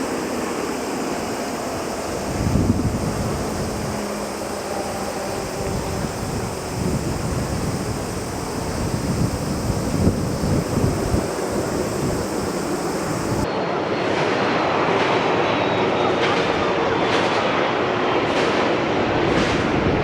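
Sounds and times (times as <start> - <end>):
jet airliner passing: 0.0 - 20.0
wind buffeting microphone: 1.7 - 13.5, 18.1 - 20.0.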